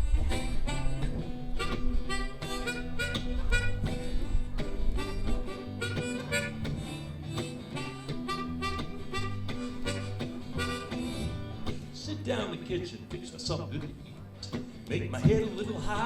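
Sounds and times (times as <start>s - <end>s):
harmonica lead: 0.0s - 12.7s
guitar: 0.0s - 16.0s
walking bass: 0.0s - 16.0s.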